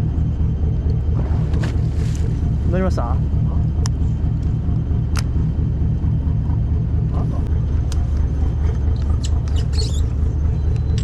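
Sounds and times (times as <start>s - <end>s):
boat engine rumbling: 0.0s - 11.0s
high squeaks: 9.2s - 10.2s.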